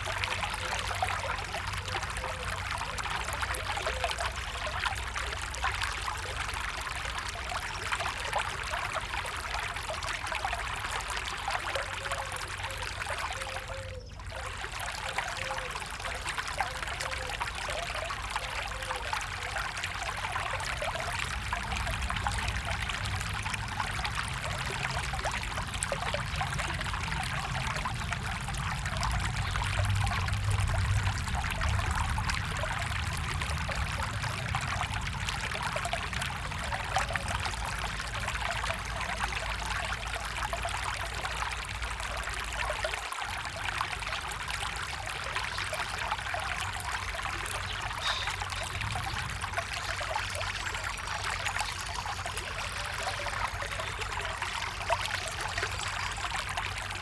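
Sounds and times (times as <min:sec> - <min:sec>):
stream water trickling: 0:00.0 - 0:57.0.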